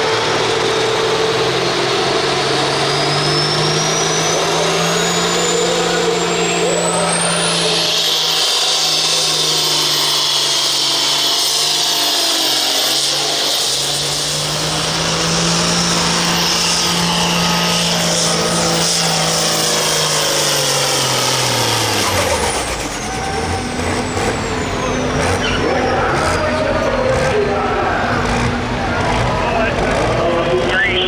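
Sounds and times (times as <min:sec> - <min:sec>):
tractor engine at full throttle: 0:00.0 - 0:31.0.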